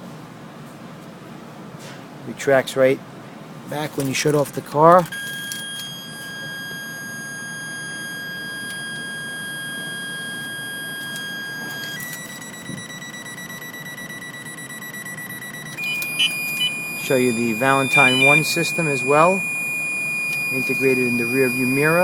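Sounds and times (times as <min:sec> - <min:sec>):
electronic warning tone: 0:05.0 - 0:22.0.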